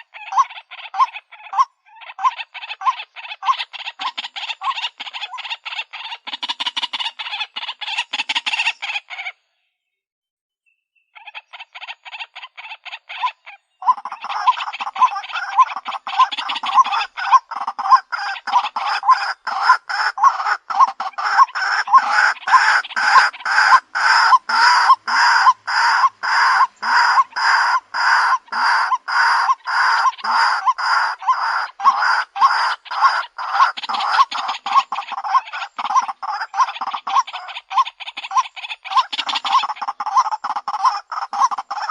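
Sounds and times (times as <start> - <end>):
bird calling repeated note: 13.8 - 41.9.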